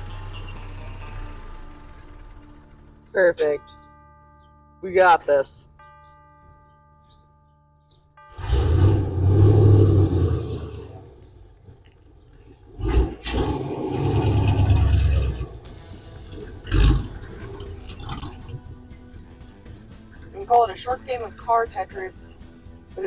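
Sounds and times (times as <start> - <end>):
vehicle engine revving: 8.3 - 11.2, 12.7 - 18.8.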